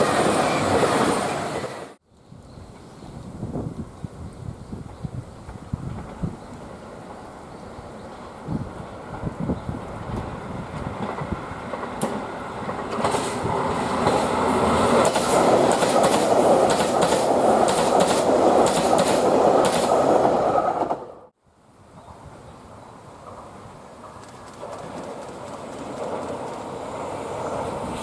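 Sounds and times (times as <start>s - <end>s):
train rumbling on rails: 0.0s - 2.0s, 2.6s - 21.3s, 22.0s - 28.0s
wheels clicking over rail joints: 10.0s - 14.4s, 23.2s - 26.8s.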